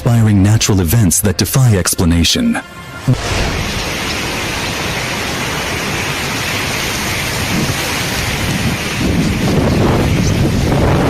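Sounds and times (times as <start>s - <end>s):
steady rushing noise: 2.6s - 11.0s.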